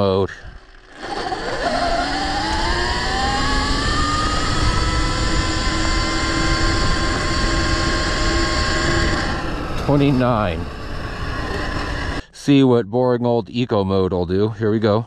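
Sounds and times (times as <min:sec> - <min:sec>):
electric motor whine: 0:00.0 - 0:12.2.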